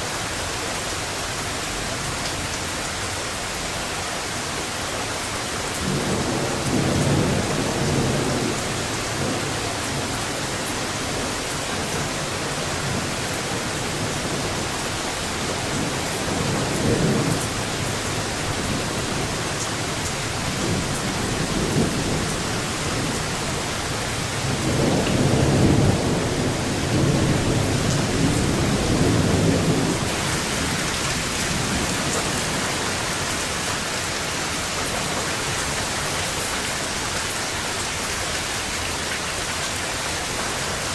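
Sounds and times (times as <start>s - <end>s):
steady rain falling: 0.0s - 40.9s
thunder rumbling: 11.2s - 34.0s.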